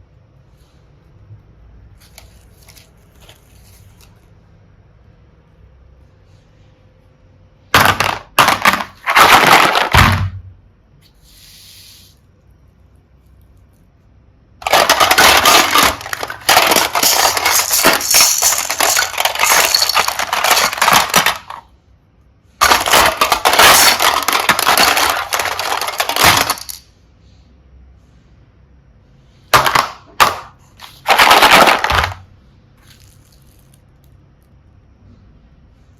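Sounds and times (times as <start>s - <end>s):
plastic beads clattering: 7.8s - 10.1s, 14.6s - 21.7s, 22.6s - 26.9s, 29.6s - 32.2s, 32.8s - 34.2s.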